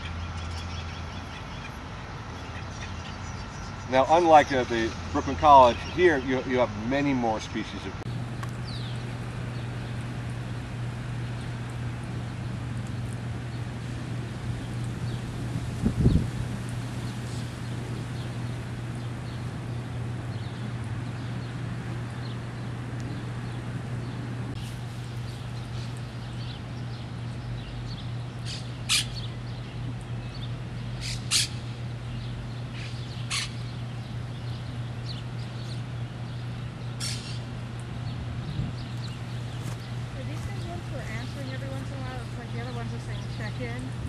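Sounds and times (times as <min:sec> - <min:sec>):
parakeets squawking: 0:00.0 - 0:08.0, 0:28.4 - 0:29.3, 0:31.0 - 0:31.7, 0:32.8 - 0:33.8, 0:37.0 - 0:37.6
low hum: 0:00.0 - 0:44.0.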